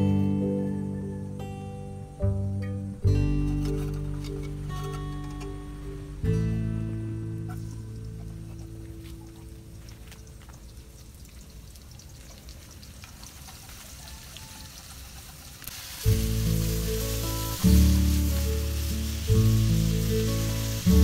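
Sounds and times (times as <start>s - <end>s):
acoustic guitar music: 0.0s - 10.5s, 16.0s - 21.0s
meat sizzling in hot oil: 11.2s - 21.0s.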